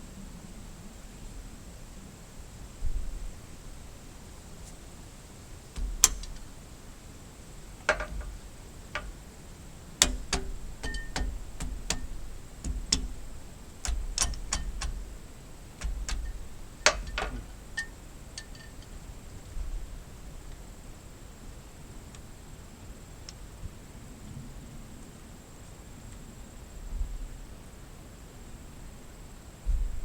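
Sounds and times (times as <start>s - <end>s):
metal tools clinking: 7.9s - 9.2s, 10.0s - 19.0s.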